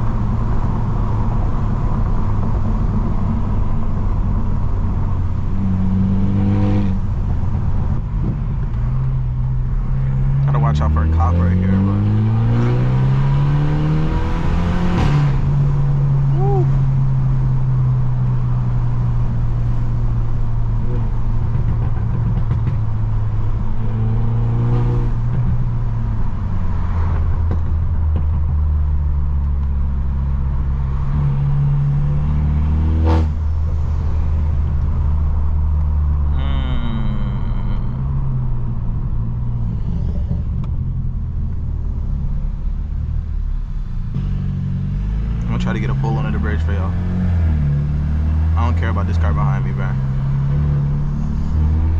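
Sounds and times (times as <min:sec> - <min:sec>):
car engine and exhaust droning: 0:00.0 - 0:51.9.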